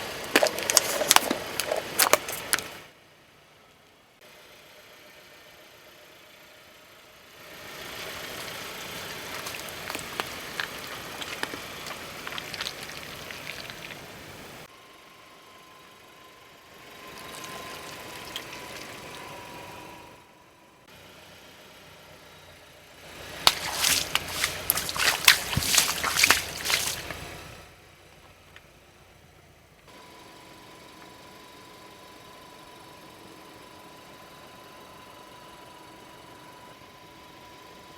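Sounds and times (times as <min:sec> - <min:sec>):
liquid trickling: 0:00.0 - 0:02.8, 0:08.4 - 0:14.7, 0:17.1 - 0:19.8, 0:23.3 - 0:27.5
tyres crushing objects: 0:00.0 - 0:02.8, 0:09.1 - 0:14.6, 0:23.4 - 0:27.3.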